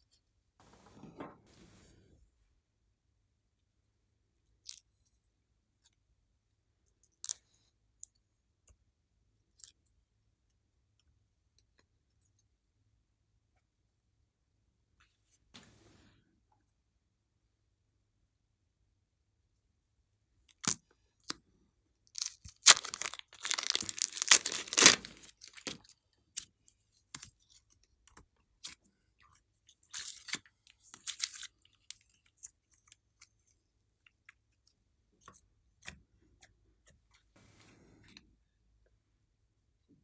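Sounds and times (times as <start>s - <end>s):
crackling and crinkling: 22.2s - 25.8s, 30.0s - 32.0s.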